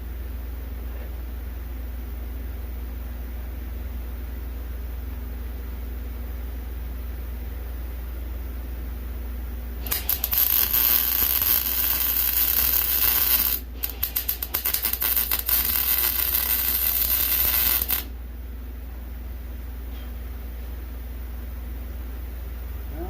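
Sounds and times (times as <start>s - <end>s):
welding arc crackling: 9.8s - 18.1s.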